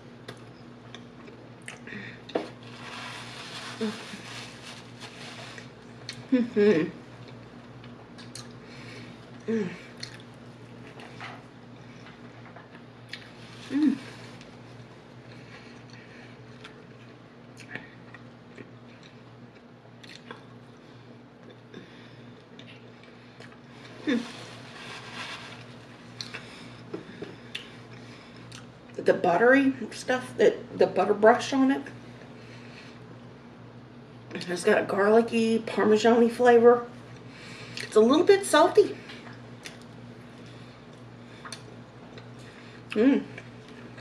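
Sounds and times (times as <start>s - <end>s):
low steady hum: 0.0s - 44.0s
rustling: 2.6s - 5.7s, 24.1s - 26.0s
person chewing: 9.3s - 10.3s, 15.7s - 20.4s.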